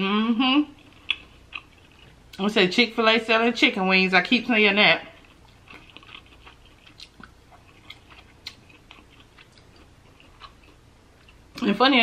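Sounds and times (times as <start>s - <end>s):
wet chewing mouth clicks: 5.2s - 11.6s.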